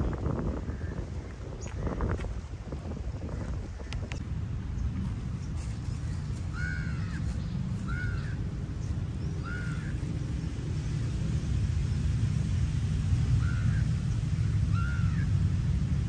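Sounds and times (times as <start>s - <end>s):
wind on microphone: 0.0s - 16.0s
bird calling: 6.0s - 10.2s, 13.4s - 15.4s.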